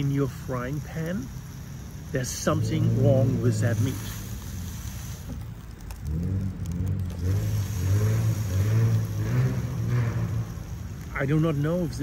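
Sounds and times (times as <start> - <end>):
car engine accelerating: 1.0 - 12.0.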